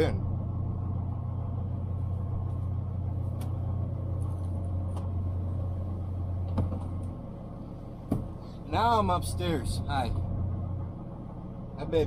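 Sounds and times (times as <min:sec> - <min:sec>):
diesel engine idling: 0:00.0 - 0:12.0
knocks and thump on steps: 0:08.1 - 0:08.3.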